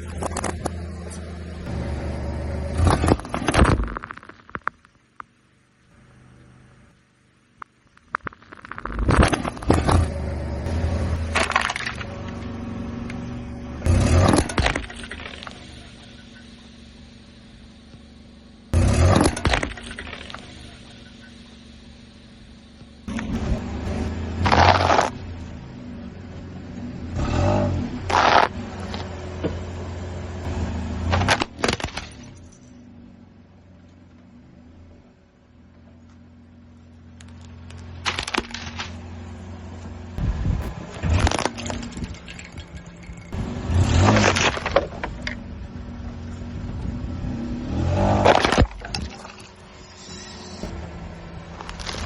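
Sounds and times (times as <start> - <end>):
motor hum: 0.0 - 52.0
loud crunching: 7.6 - 13.2, 23.0 - 25.5, 27.2 - 29.2, 31.0 - 32.7, 37.2 - 45.4, 47.7 - 52.0
loud crunching and cracking: 24.4 - 25.2, 28.1 - 29.0, 37.2 - 39.1, 40.6 - 45.2, 51.4 - 52.0.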